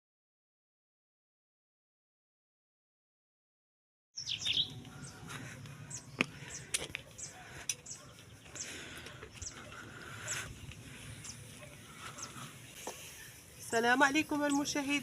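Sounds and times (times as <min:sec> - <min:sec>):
small birds chirping: 0:04.2 - 0:15.0.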